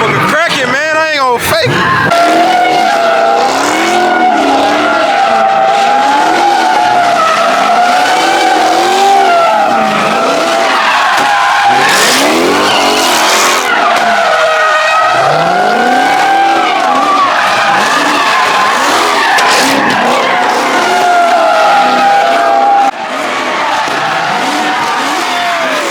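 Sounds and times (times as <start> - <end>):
car engine revving: 0.0 - 25.9
car tyres squealing: 0.0 - 25.9.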